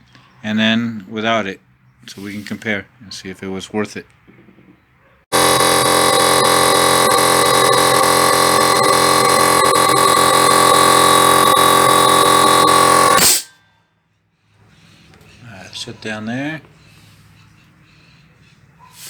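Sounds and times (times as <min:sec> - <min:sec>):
air compressor running with whine: 0:05.3 - 0:13.4.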